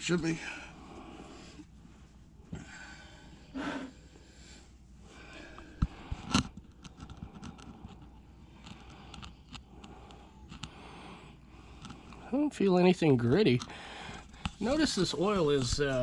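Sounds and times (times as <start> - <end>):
objects handled by hand: 5.5 - 10.8, 13.5 - 16.0.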